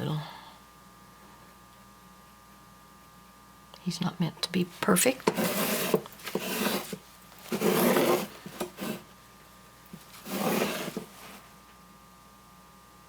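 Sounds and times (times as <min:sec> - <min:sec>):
scrubbing against canvas: 0:05.3 - 0:09.1, 0:10.1 - 0:11.4.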